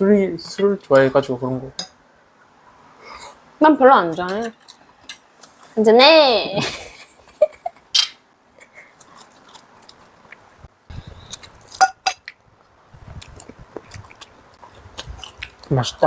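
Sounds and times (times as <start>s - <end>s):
cutlery and dishes clicking: 8.0s - 8.2s
glasses clinking: 8.0s - 8.2s, 11.8s - 12.3s.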